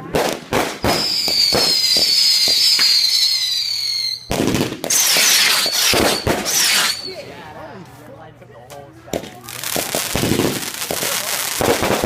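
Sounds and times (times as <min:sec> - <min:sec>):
scattered fireworks pops: 0:00.0 - 0:03.0, 0:04.3 - 0:07.0, 0:09.1 - 0:12.0
fireworks bangs: 0:00.0 - 0:07.3, 0:09.1 - 0:12.0
firework whistle: 0:00.8 - 0:07.3.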